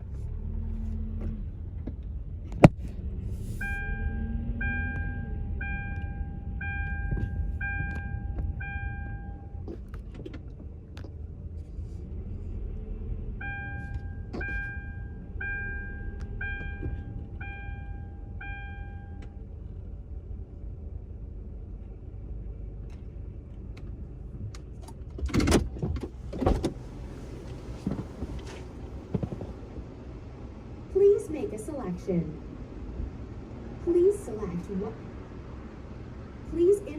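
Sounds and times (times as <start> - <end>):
car engine idling: 0.0 - 25.1
electronic chime beeps: 3.6 - 9.6, 13.4 - 19.2.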